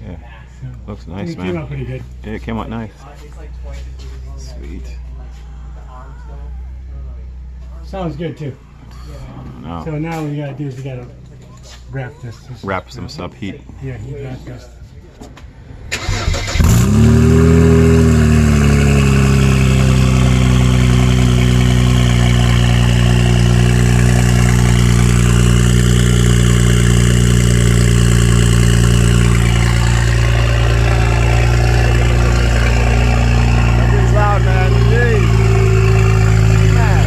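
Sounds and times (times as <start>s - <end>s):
car engine starting and idling: 15.3s - 37.0s.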